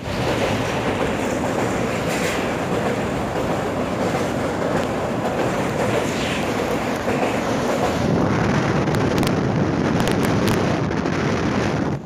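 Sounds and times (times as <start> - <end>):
train wheels rumbling on rails: 0.0 - 12.0
faint clickety-clack: 0.2 - 8.0.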